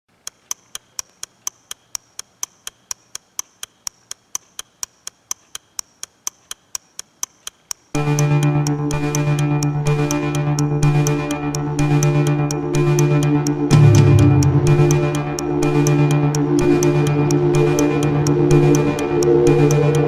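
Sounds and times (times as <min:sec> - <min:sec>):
steady even ticking: 0:00.1 - 0:20.0
loud electronic music: 0:08.0 - 0:20.0.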